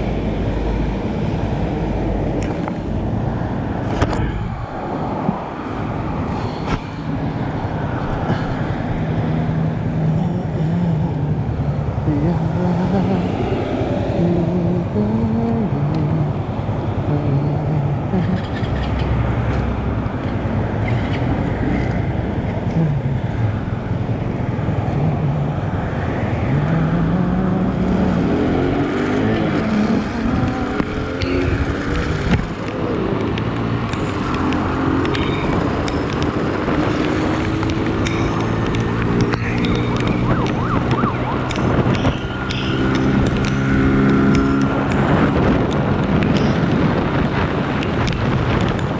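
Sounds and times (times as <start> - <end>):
wind and road noise: 0.0 - 48.9
motorcycle engine accelerating: 26.8 - 46.6.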